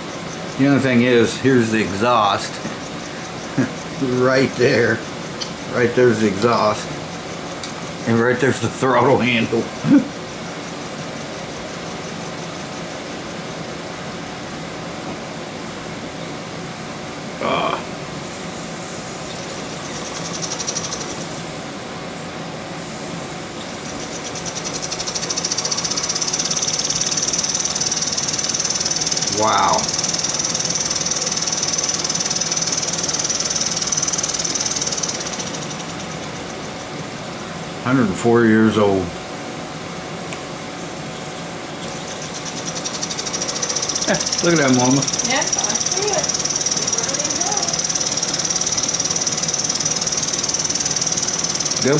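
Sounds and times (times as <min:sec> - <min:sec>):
toy steam engine whirring and hissing: 0:18.2 - 0:21.8, 0:22.8 - 0:36.3, 0:42.1 - 0:51.9
steam hissing: 0:22.8 - 0:35.7
toy steam engine beating: 0:43.0 - 0:51.9.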